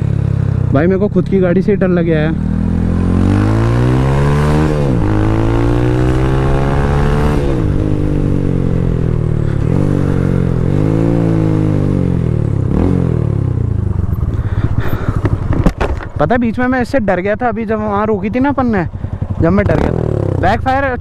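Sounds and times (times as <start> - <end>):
motorcycle engine being revved: 19.1 - 20.6.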